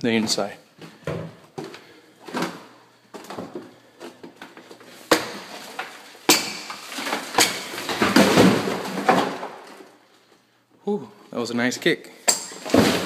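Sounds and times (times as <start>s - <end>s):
drywall cracking and breaking: 5.1s - 10.0s, 12.5s - 13.0s
sharp kicking impacts on drywall: 6.3s - 9.6s, 12.4s - 13.0s.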